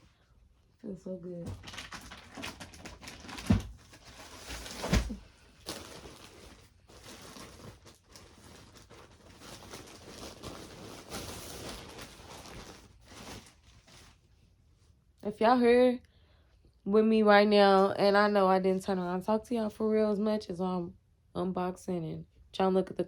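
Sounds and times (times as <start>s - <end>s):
clothes and packaging rustling: 0.1s - 15.1s.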